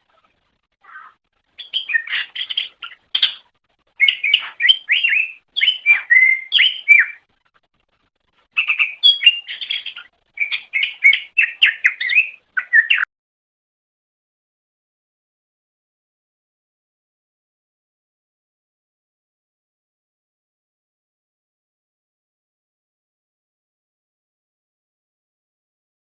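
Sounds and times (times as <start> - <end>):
bird singing chirps and whistles: 1.6 - 3.4, 4.0 - 7.3, 8.6 - 13.1.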